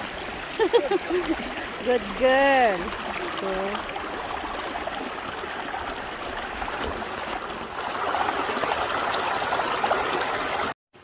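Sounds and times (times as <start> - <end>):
creek water flowing: 0.0 - 10.8.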